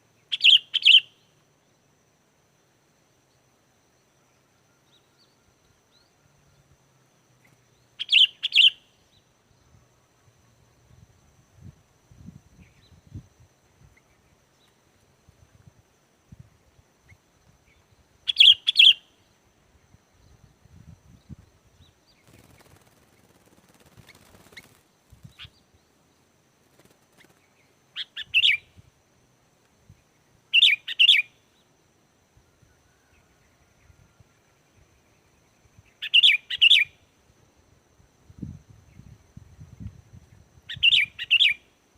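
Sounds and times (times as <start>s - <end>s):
bird singing fast phrases: 0.2s - 1.1s, 7.4s - 8.8s, 17.7s - 19.1s, 21.1s - 25.8s, 26.7s - 28.8s, 30.5s - 31.3s, 35.8s - 36.9s, 40.7s - 41.6s.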